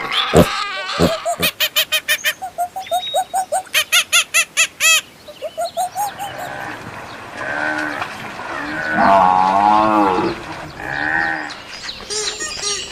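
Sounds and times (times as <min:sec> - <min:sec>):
bird calling: 0:00.0 - 0:06.8.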